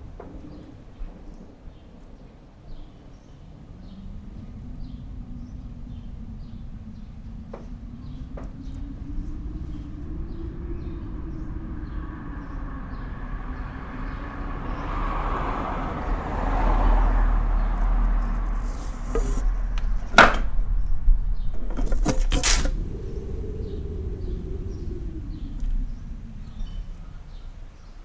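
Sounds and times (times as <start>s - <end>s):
snowstorm wind blowing: 0.0s - 28.0s.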